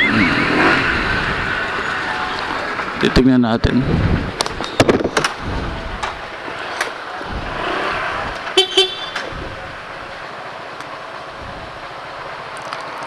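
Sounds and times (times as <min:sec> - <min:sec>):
street traffic noise: 0:00.0 - 0:13.0
vehicle horn toots: 0:08.5 - 0:09.2.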